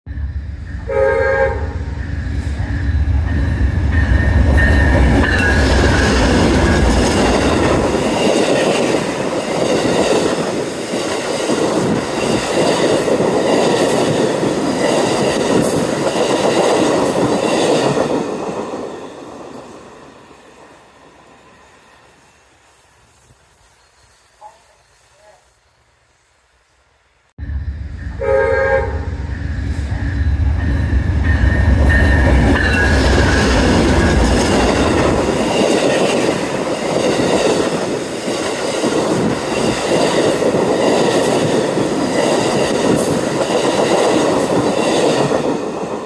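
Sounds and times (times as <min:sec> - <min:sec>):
train horn blast: 0:00.8 - 0:02.6, 0:27.8 - 0:30.1
train wheels clattering on rails: 0:02.2 - 0:20.6, 0:29.7 - 0:46.0.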